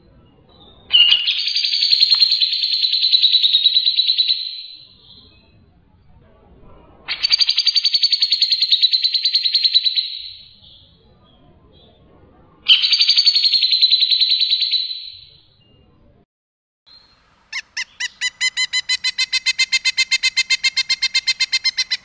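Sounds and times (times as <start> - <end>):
songbird rapid trills: 17.0 - 22.0.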